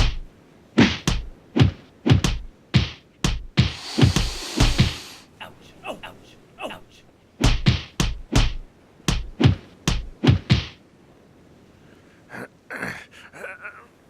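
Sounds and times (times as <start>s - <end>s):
heavy thumping punches: 0.8s - 5.2s, 7.4s - 10.8s.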